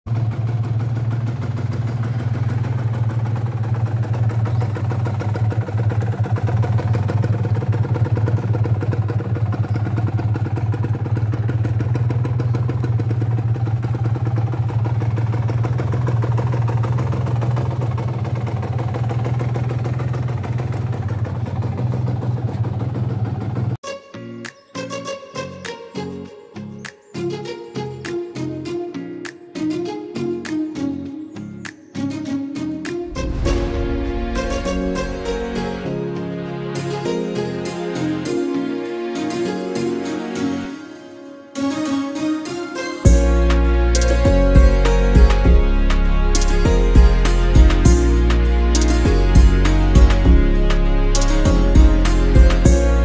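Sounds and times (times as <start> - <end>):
motorcycle engine idling: 0.1 - 23.8
short music jingle: 32.9 - 53.0.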